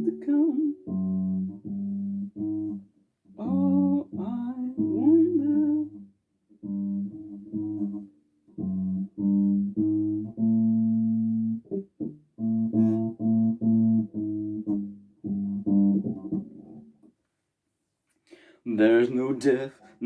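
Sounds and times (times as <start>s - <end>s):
bass guitar plucked notes: 0.0s - 16.9s.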